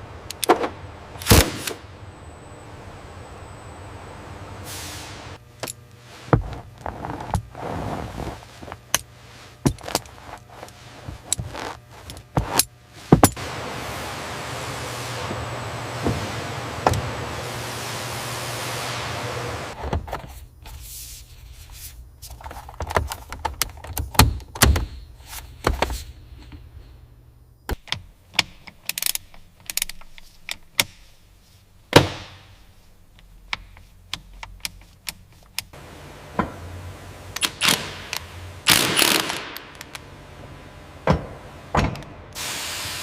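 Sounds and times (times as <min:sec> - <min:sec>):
short hissing bursts: 0:42.4 - 0:43.0.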